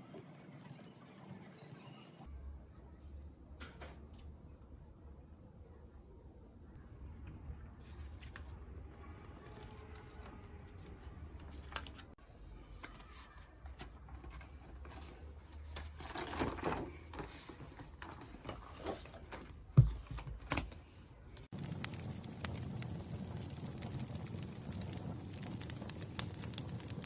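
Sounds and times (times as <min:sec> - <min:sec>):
objects clicking and tapping: 0:12.8 - 0:21.5
sharp thump: 0:19.8 - 0:20.4.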